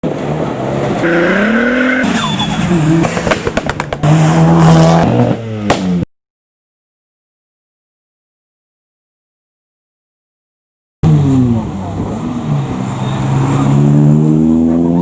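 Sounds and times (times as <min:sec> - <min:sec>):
car engines revving: 0:00.0 - 0:06.1, 0:11.0 - 0:15.0
exhaust pops and cracks: 0:03.0 - 0:04.0.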